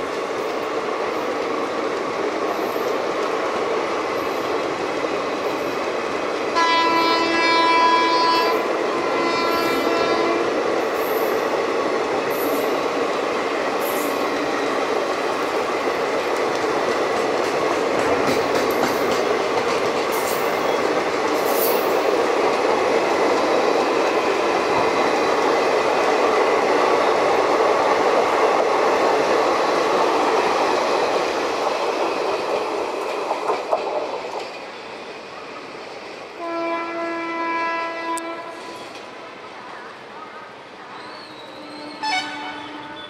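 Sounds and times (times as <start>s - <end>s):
passenger train passing: 0.0s - 43.0s
train horn blast: 6.5s - 10.6s, 36.4s - 38.9s, 41.4s - 43.0s.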